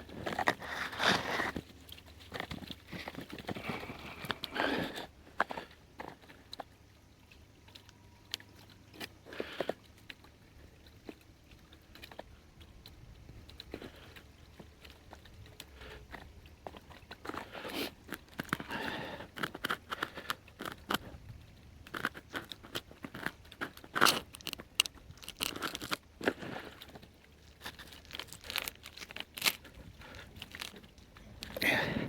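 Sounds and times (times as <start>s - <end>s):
twigs crunching and snapping: 21.8s - 31.8s.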